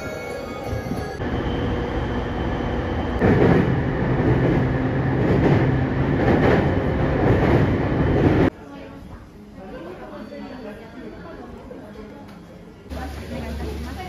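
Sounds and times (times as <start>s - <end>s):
train rumbling with low hum: 0.7s - 8.5s.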